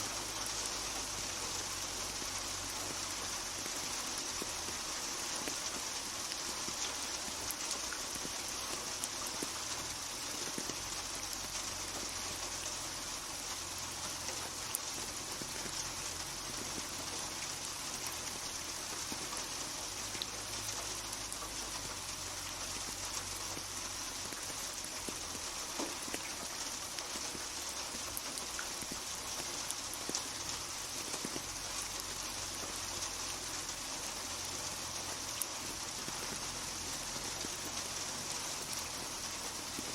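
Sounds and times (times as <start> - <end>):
rain hiss: 0.0 - 39.9
raindrops pattering on hard surface: 0.0 - 39.9.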